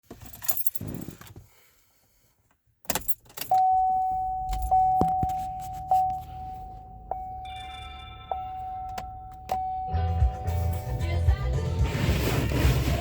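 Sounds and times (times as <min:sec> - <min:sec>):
car warning tone: 0:03.4 - 0:12.2
keys jangling: 0:04.4 - 0:11.1.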